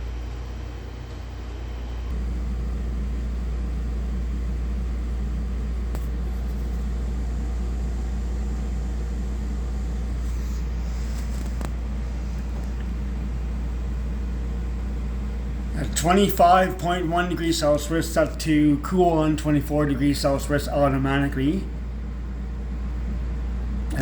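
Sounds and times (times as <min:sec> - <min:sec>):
air conditioner humming: 0:00.0 - 0:24.0.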